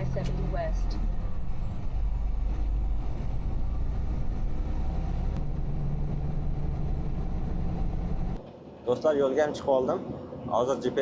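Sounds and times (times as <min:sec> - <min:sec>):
truck engine drone: 0:00.0 - 0:08.4
road noise: 0:00.0 - 0:11.0.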